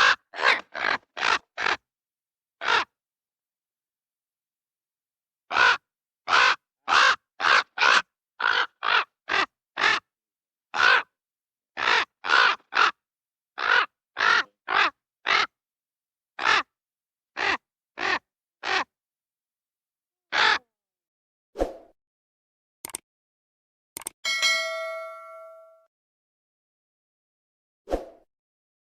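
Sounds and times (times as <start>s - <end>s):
raven croaking calls: 0.0s - 1.8s, 2.6s - 3.0s, 5.5s - 10.1s, 10.7s - 11.2s, 11.8s - 13.0s, 13.6s - 15.6s, 16.4s - 16.8s, 17.4s - 18.9s, 20.3s - 20.7s
click: 22.8s - 23.0s, 24.0s - 24.2s.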